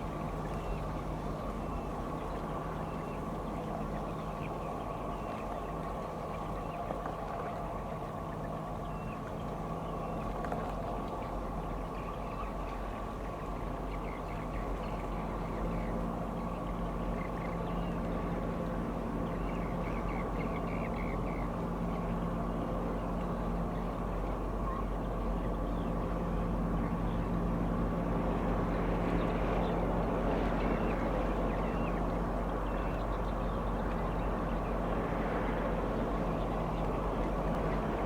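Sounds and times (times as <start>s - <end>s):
ship engine drone: 11.1s - 38.0s.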